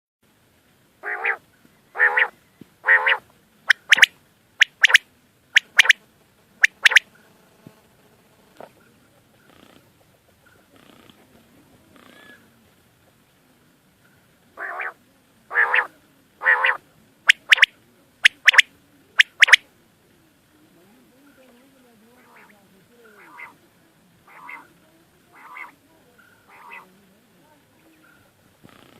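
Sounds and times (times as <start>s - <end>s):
bird calling: 1.0s - 5.0s, 5.6s - 6.0s, 6.6s - 7.0s, 14.6s - 19.6s, 22.2s - 23.6s, 24.2s - 27.0s.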